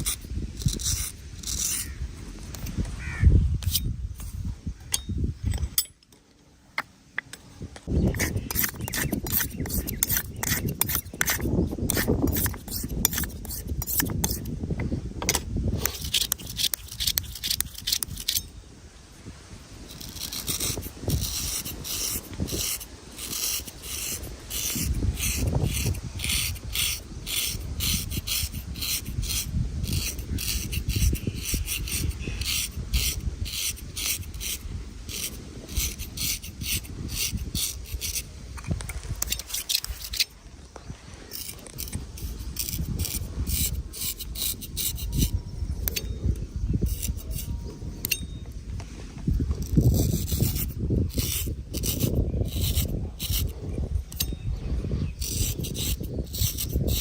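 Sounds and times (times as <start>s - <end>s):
razor scraping skin and hair: 0.0s - 2.0s, 8.0s - 14.5s, 15.8s - 18.5s, 19.9s - 38.3s, 39.2s - 40.3s, 41.3s - 46.0s, 46.8s - 48.2s, 49.6s - 54.4s, 55.2s - 57.0s.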